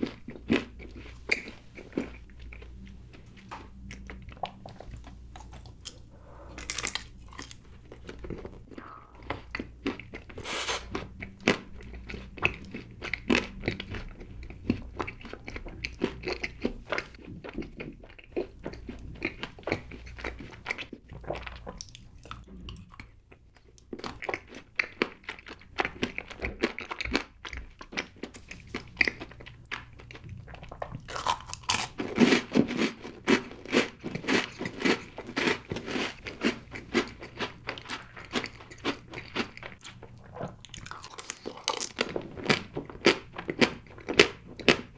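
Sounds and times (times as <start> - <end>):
chewing cake: 0.0 - 44.9.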